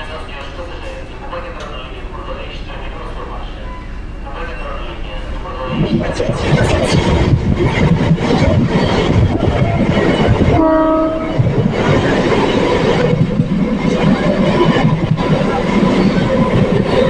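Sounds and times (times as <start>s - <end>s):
train wheel and track noise: 0.0s - 17.0s
train horn: 10.5s - 11.4s.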